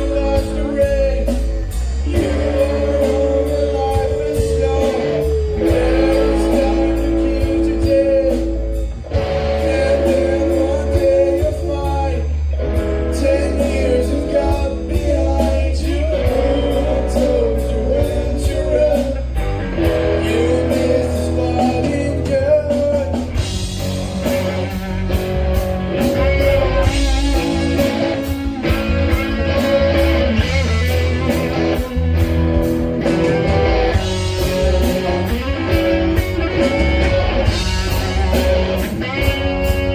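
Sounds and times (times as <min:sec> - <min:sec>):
person singing: 0:00.0 - 0:23.4
bass guitar: 0:00.0 - 0:39.9
electric guitar: 0:00.0 - 0:39.9.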